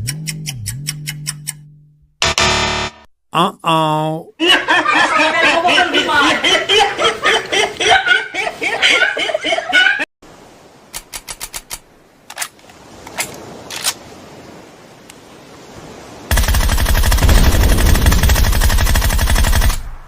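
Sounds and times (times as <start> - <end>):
person chattering and laughing: 3.3 - 6.6
loud rapid rattle: 16.3 - 19.9.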